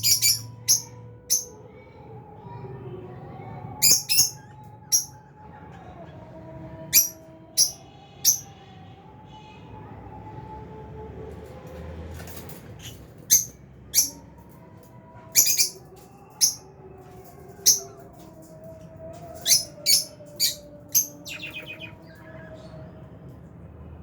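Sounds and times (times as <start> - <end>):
lovebirds chirping: 19.3 - 23.0
lovebirds chattering: 19.4 - 22.8.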